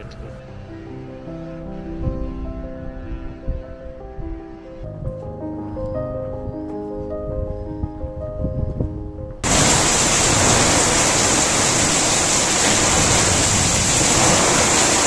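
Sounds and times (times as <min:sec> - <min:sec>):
background music: 0:00.0 - 0:11.7
heavy rain hissing: 0:09.4 - 0:15.0.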